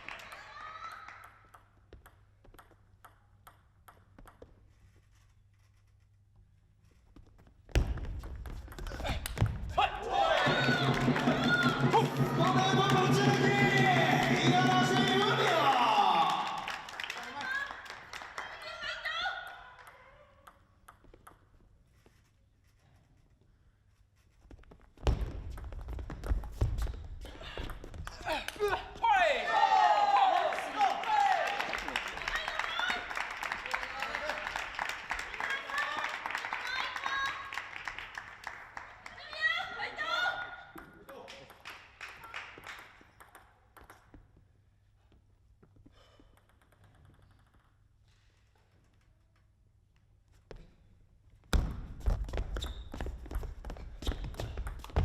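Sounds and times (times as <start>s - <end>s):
spectators clapping: 0.0s - 1.3s, 8.8s - 19.6s, 28.0s - 39.9s, 41.3s - 43.1s.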